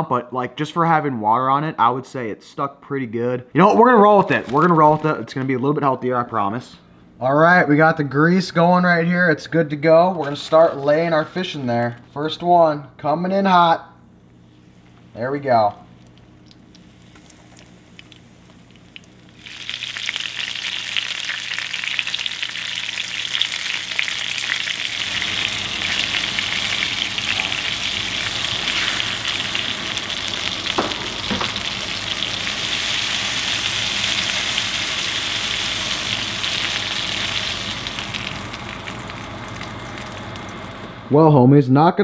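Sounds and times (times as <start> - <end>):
fish sizzling in hot oil: 16.1 - 40.8.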